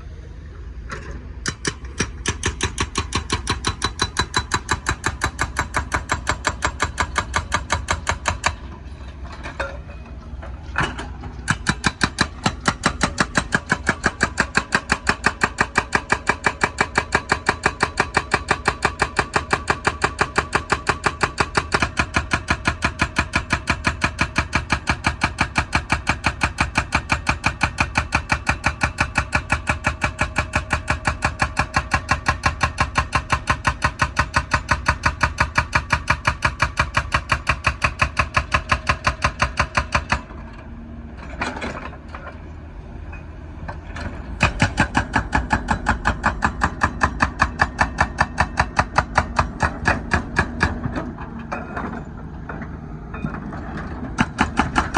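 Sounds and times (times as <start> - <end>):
hydraulic breaker hammering asphalt: 1.4 - 8.8, 10.9 - 40.4, 44.0 - 52.6, 53.2 - 54.9.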